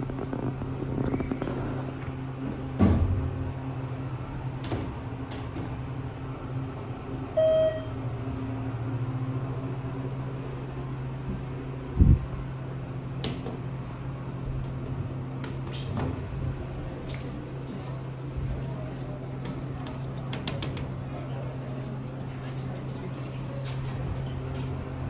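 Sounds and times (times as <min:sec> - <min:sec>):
elevator humming: 0:00.0 - 0:15.4
short electronic beep: 0:07.4 - 0:08.0.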